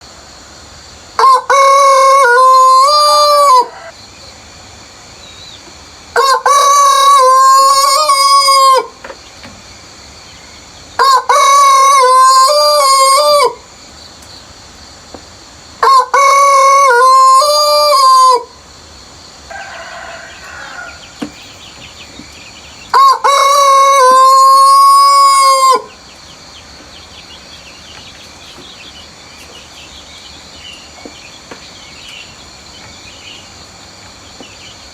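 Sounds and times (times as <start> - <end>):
rooster crowing: 1.2 - 4.1, 6.2 - 9.0, 11.0 - 13.7, 15.8 - 18.5, 19.4 - 22.0, 22.6 - 26.1.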